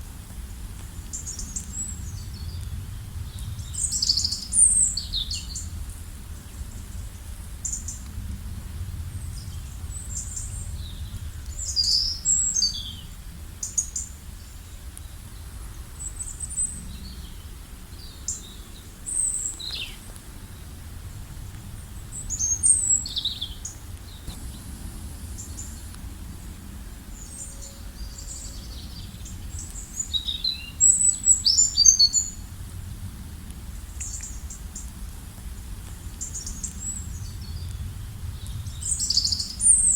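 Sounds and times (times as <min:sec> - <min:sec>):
steady low rumble: 0:00.0 - 0:39.9
songbirds chirping: 0:09.0 - 0:32.5.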